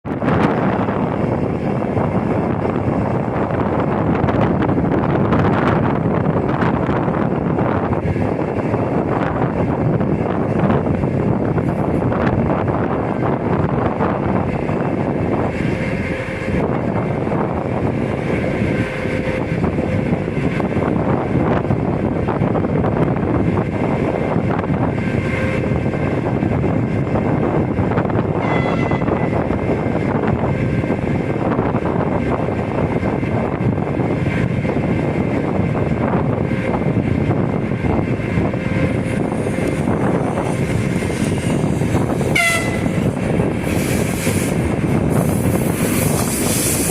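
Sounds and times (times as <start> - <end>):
diesel locomotive engine: 0.0 - 46.9
wind buffeting microphone: 0.0 - 46.9.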